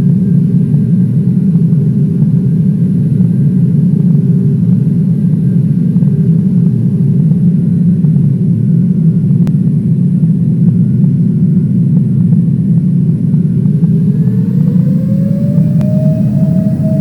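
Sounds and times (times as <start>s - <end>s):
airliner cabin engine roar: 0.0s - 17.0s
engine tone rising in pitch: 13.4s - 17.0s.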